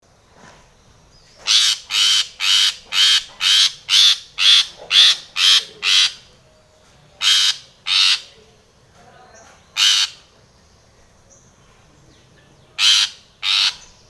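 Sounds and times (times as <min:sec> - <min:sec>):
bird harsh rasping calls: 0:01.3 - 0:06.4, 0:07.2 - 0:08.5, 0:09.7 - 0:10.4, 0:12.7 - 0:14.0.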